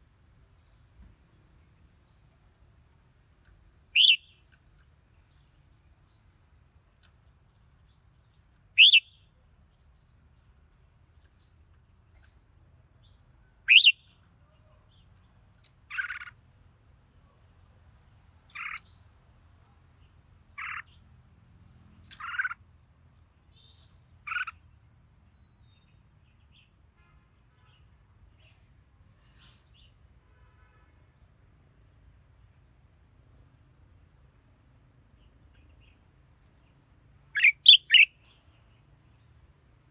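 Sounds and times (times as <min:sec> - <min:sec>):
bird singing: 0:04.0 - 0:04.4, 0:08.8 - 0:09.3, 0:13.7 - 0:14.2, 0:37.4 - 0:38.2.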